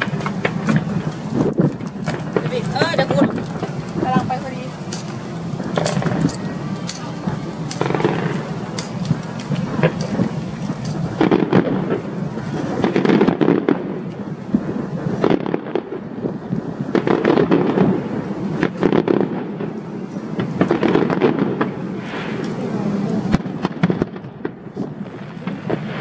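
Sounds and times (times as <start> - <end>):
fireworks bursting and crackling: 0.0 - 26.0
rolling rumble: 0.0 - 26.0.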